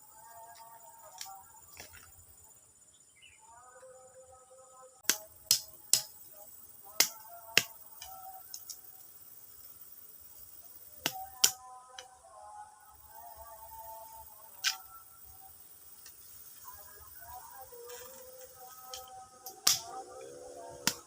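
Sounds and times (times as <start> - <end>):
sharp clicks or snaps: 5.0 - 6.1, 7.0 - 8.8, 11.0 - 11.6, 14.6 - 14.9, 18.9 - 19.9.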